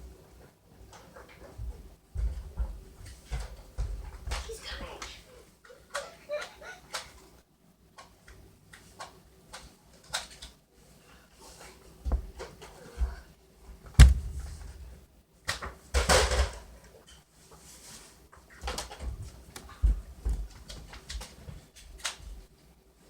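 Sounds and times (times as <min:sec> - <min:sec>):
knocks and thumps: 0:12.0 - 0:13.2, 0:13.9 - 0:15.0.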